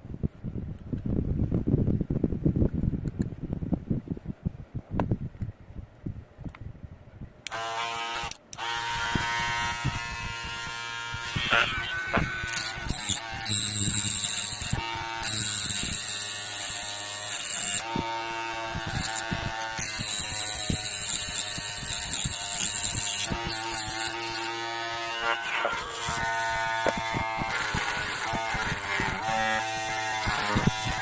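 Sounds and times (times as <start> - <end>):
small motor whining: 7.5 - 31.0.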